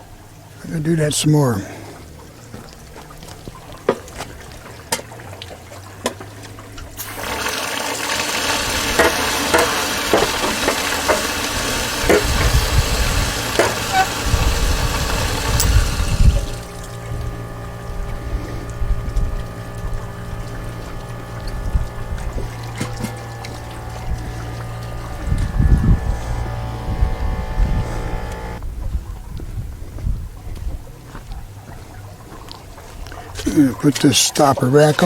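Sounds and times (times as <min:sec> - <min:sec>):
water surging and gurgling: 0:01.2 - 0:27.5
compressed air hissing: 0:07.0 - 0:28.6.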